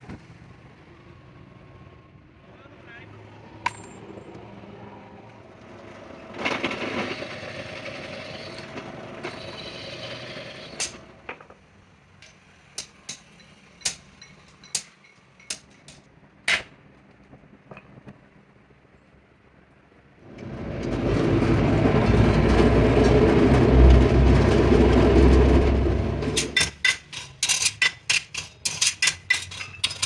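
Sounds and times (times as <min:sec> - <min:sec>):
tools clicking and knocking: 0:12.2 - 0:16.7, 0:26.4 - 0:30.0
steady noisy rushing: 0:19.4 - 0:27.2.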